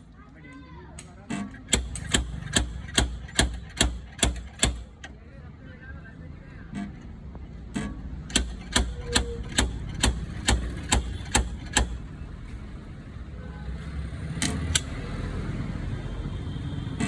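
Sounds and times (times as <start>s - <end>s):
hammer tapping sheet metal: 1.6s - 5.1s, 8.3s - 12.1s.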